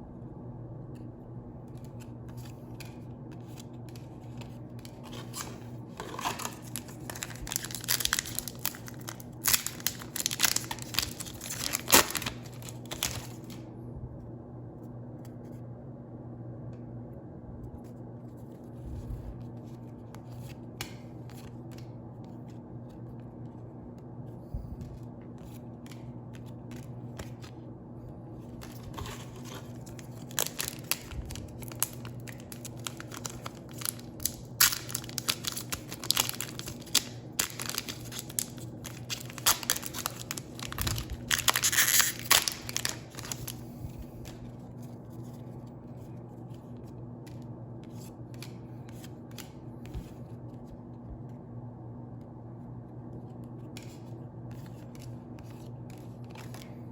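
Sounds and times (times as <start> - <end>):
steady low hum: 0.0 - 56.9
foil wrappers crinkling and tearing: 3.5 - 13.6, 28.4 - 45.5, 54.7 - 56.9.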